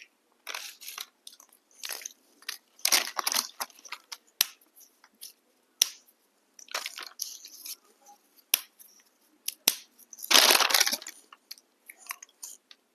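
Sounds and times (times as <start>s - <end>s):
crunchy biscuits being chewed: 0.5s - 4.2s.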